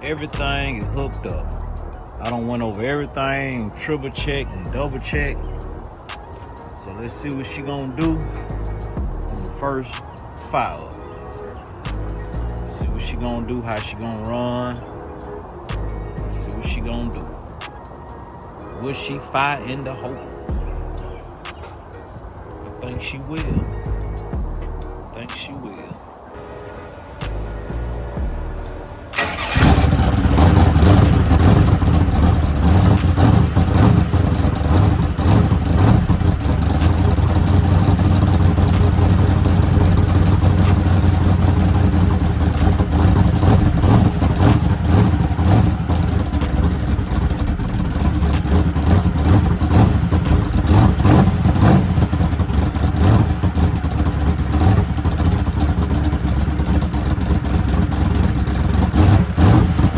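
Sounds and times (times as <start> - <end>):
car engine starting and revving: 0.0 - 6.1, 8.0 - 10.0, 11.9 - 14.8, 15.7 - 17.7, 26.4 - 59.9.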